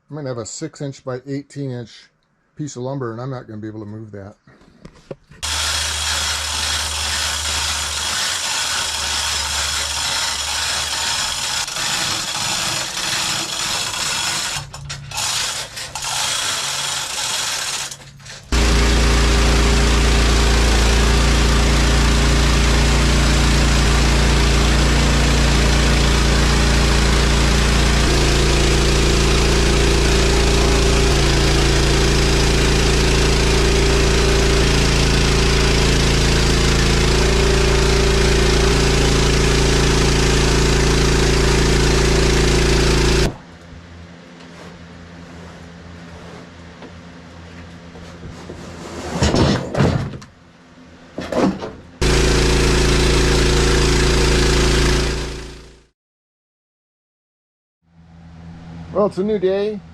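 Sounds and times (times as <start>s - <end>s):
small gasoline engine running: 5.4s - 43.4s, 52.0s - 55.9s
machine humming: 5.4s - 44.7s, 52.0s - 55.6s.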